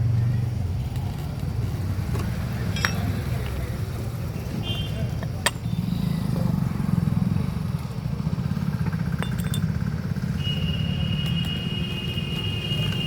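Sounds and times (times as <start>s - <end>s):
motorcycle engine idling: 1.7s - 10.7s.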